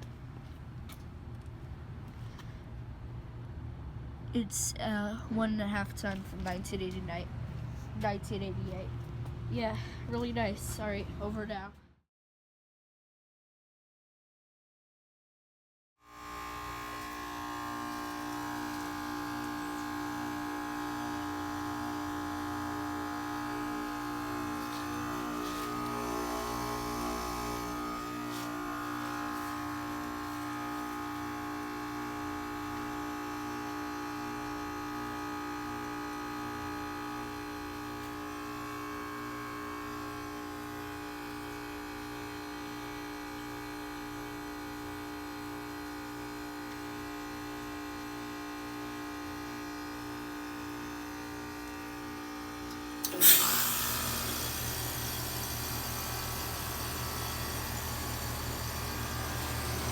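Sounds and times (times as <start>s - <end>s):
electrical machine hum: 16.1s - 59.9s.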